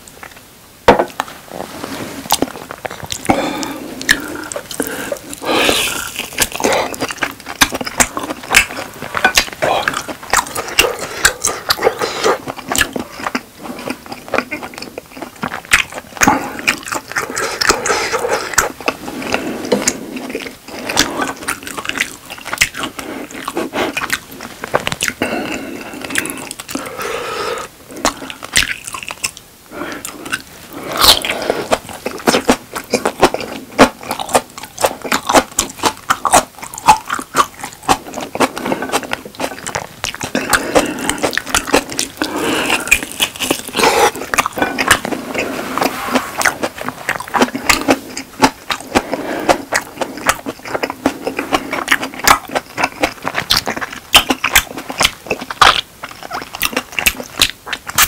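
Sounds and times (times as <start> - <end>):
person chewing steak: 1.1 - 58.0.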